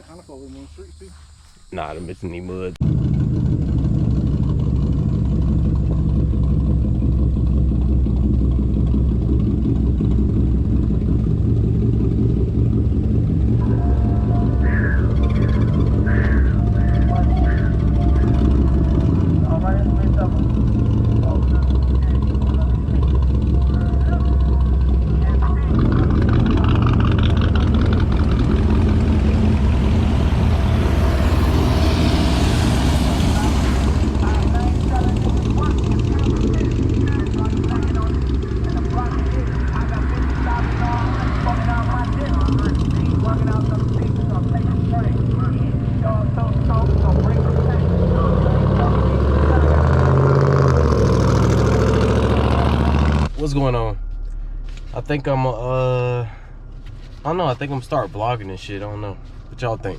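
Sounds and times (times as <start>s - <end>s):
vehicle engine deep rumble: 0.0s - 59.9s
music: 13.6s - 19.5s.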